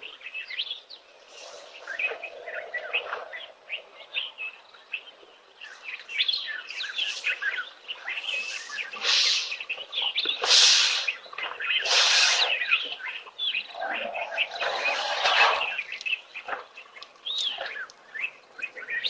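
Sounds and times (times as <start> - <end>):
wild birds chirping: 0.0 - 19.0
hissing rush of noise: 8.2 - 9.6, 10.4 - 11.2, 11.8 - 12.7, 14.0 - 15.8.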